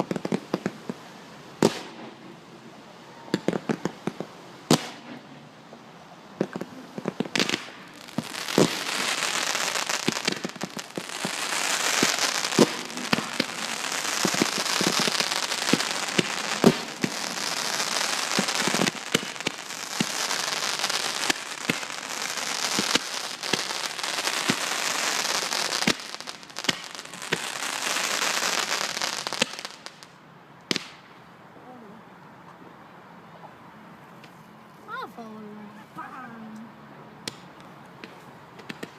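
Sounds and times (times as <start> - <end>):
fireworks bangs: 0.0 - 1.0, 1.6 - 2.4, 3.3 - 5.8, 6.4 - 31.2, 37.2 - 38.9
fireworks crackling: 0.0 - 31.2, 37.2 - 38.9.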